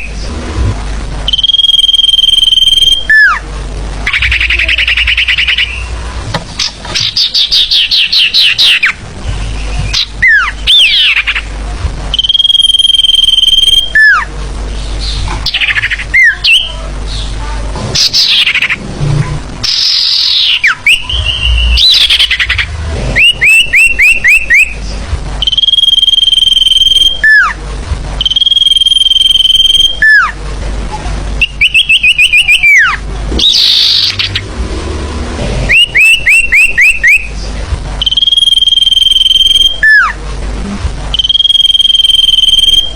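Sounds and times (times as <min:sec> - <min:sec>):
forest bird calls: 0:04.1 - 0:06.0.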